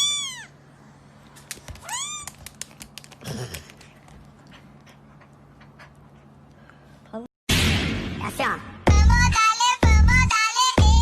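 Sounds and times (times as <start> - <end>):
cat meowing: 0.0 - 0.6, 1.8 - 2.4.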